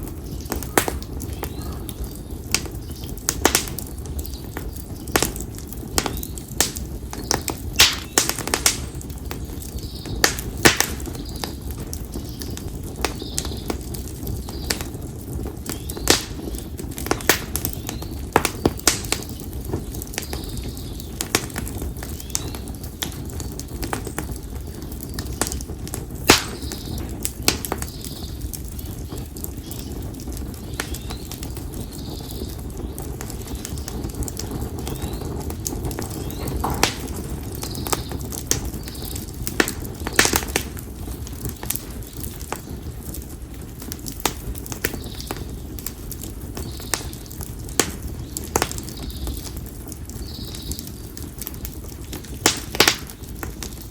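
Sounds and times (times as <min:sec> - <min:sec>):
campfire crackling and popping: 0:00.0 - 0:53.9
low rush of flame: 0:00.0 - 0:53.9
faint bird calls: 0:00.3 - 0:02.4.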